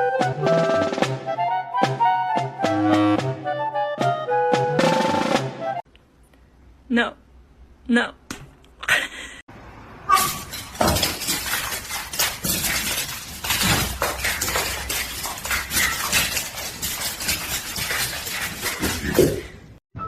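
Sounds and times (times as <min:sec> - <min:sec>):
rapid clattering and clinking: 0:10.2 - 0:19.6.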